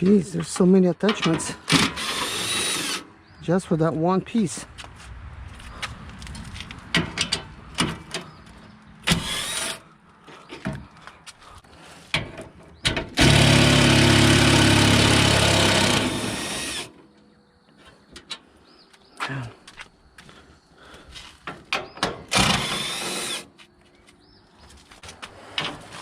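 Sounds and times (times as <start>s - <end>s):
power tool running: 13.2s - 16.9s, 22.4s - 23.5s.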